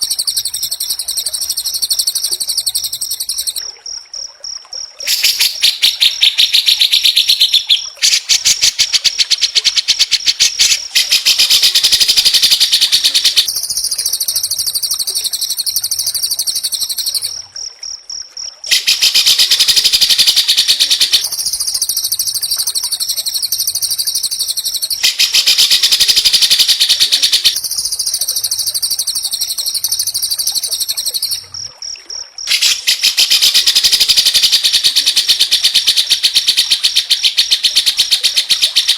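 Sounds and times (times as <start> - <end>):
bird singing rapid trills: 0.0 - 3.6, 5.1 - 17.3.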